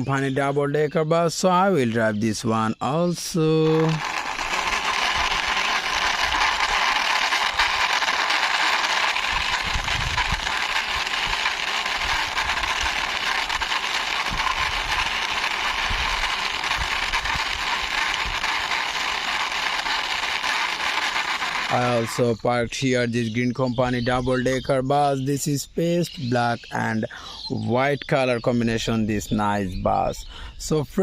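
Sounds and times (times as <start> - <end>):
toy wheels rolling on hard surface: 3.1 - 22.6.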